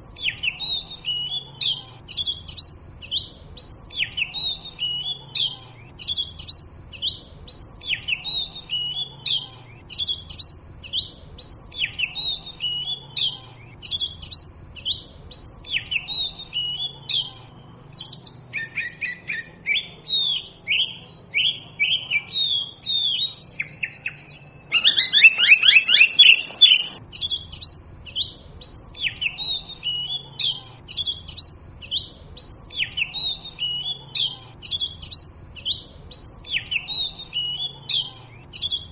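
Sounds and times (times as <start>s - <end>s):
bird singing whistled phrases: 0.0s - 17.3s, 18.0s - 38.9s
rapid downward-sliding bird notes: 18.2s - 27.8s.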